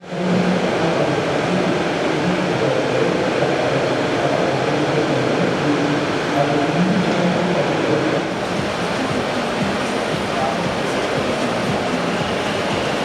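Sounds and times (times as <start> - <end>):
distant crowd chatter: 0.0 - 13.0
hall ventilation: 8.2 - 13.0.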